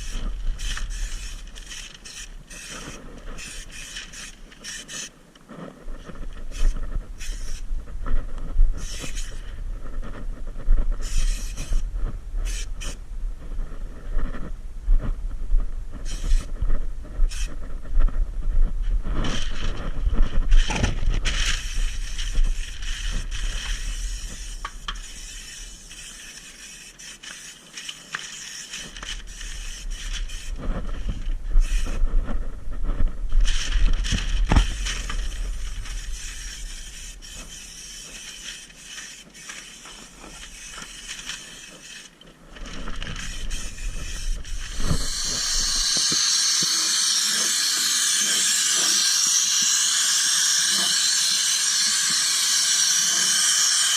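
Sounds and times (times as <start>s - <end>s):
low hum: 5.7s - 26.0s
spray gun hissing: 43.2s - 53.9s.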